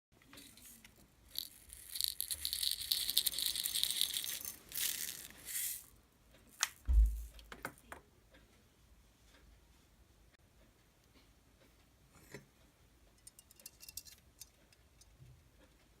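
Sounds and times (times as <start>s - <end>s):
slime crackling and rattling: 0.3s - 5.9s
low thump: 6.8s - 7.4s.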